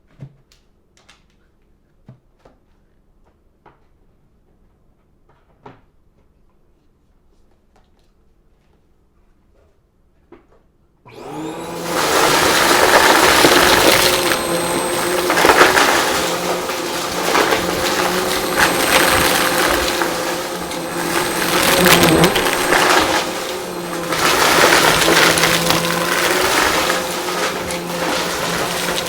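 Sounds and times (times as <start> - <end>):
vacuum cleaner running: 11.1 - 29.0
debris crackling in vacuum: 11.2 - 29.0.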